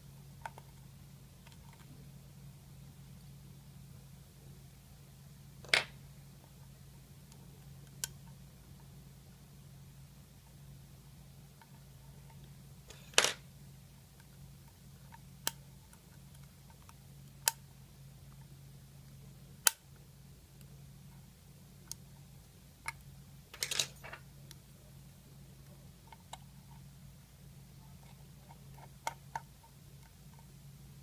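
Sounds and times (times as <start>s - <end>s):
steady low hum: 0.0s - 31.0s
small metal parts clicking: 23.5s - 24.2s.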